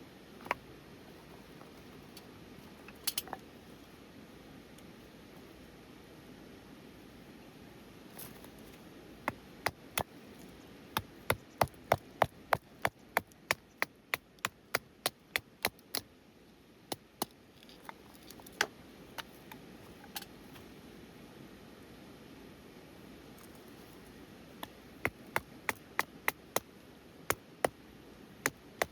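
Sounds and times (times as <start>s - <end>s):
chopping on wood: 11.0s - 16.0s, 24.6s - 26.7s, 28.5s - 28.9s.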